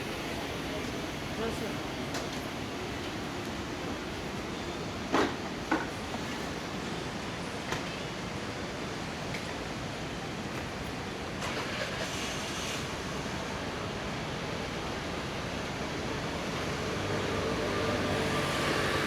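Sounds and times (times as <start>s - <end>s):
passing traffic: 11.4s - 19.0s.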